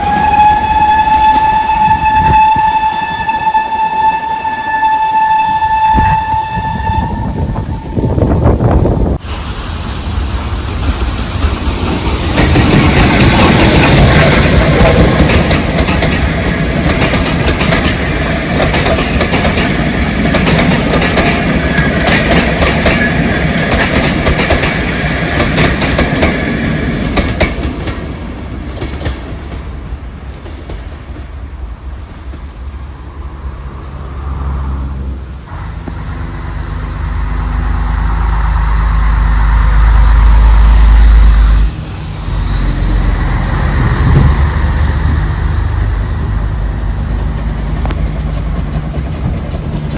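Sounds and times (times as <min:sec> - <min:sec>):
train wheels clattering: 0:10.2 - 0:32.6, 0:47.2 - 0:49.9.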